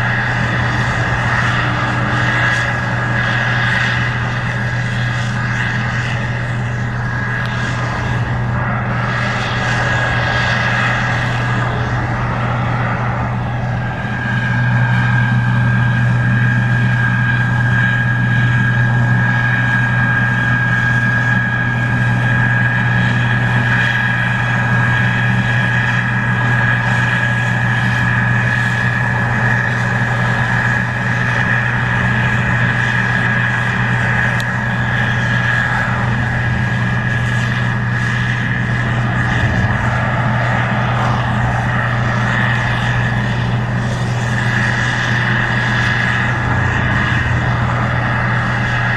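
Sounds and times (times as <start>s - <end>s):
combine diesel drone: 0.0s - 48.9s
high whine: 0.0s - 48.9s.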